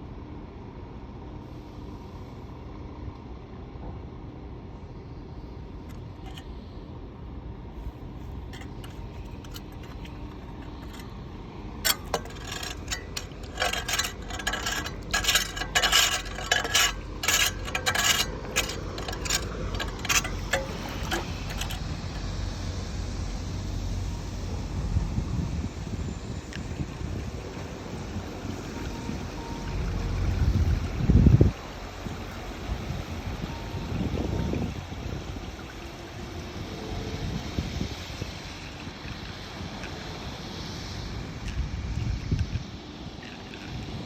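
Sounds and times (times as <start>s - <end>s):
metal clinking and scraping: 5.9s - 6.5s, 8.2s - 11.2s, 11.8s - 22.4s.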